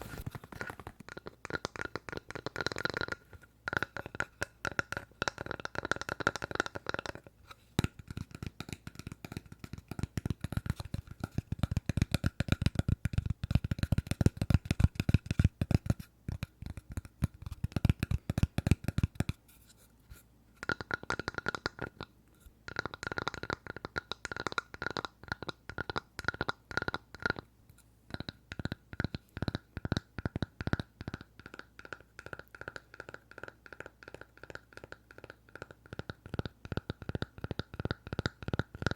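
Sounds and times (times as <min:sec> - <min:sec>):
fingers tapping on wood: 0:07.8 - 0:19.4, 0:28.1 - 0:38.9.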